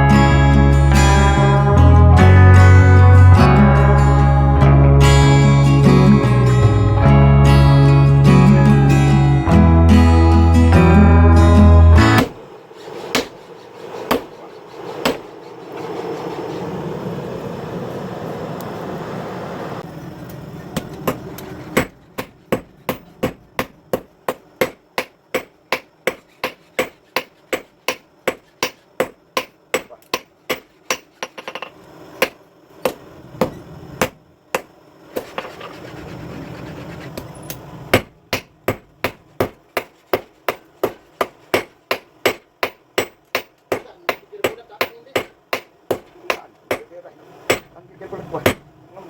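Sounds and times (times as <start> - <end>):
steady noise: 0.0 - 49.0
hammer striking steel on anvil: 21.8 - 34.7, 37.9 - 46.9, 47.5 - 47.7, 48.4 - 48.7.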